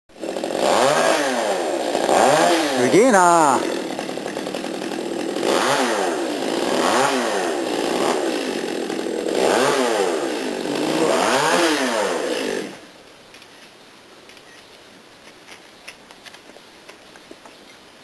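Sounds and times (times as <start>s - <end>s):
chainsaw revving: 0.1s - 12.8s.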